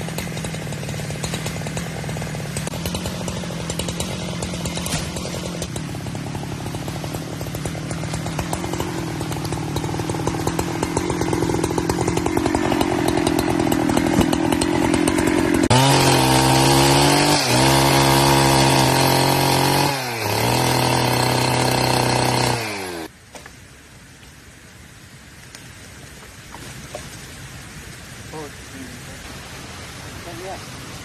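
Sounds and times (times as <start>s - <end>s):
chainsaw running: 0.0s - 23.1s.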